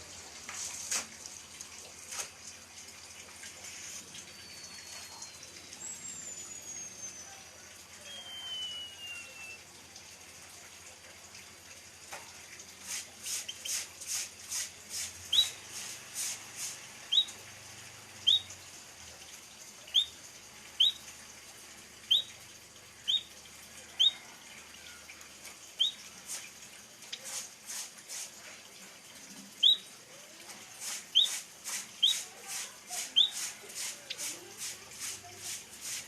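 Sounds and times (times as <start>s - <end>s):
finch chirping: 15.3s - 15.6s, 17.1s - 17.4s, 18.2s - 18.5s, 19.9s - 20.2s, 20.8s - 21.0s, 22.1s - 22.3s, 23.1s - 23.3s, 29.6s - 29.8s, 31.1s - 31.4s, 32.0s - 32.3s, 33.2s - 33.5s.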